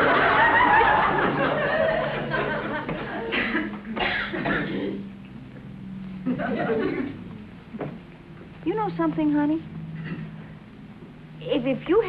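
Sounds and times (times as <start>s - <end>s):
audience laughter: 0.0s - 4.0s, 6.2s - 7.3s
steady low hum: 0.0s - 12.0s.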